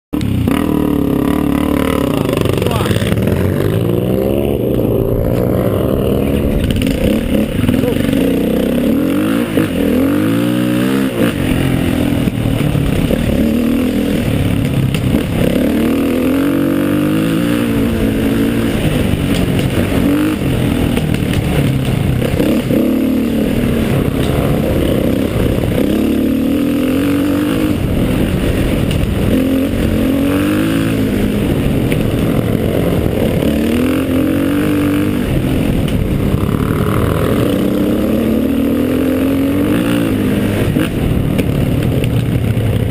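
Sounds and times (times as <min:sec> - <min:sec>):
motorcycle engine revving: 0:00.2 - 0:42.9.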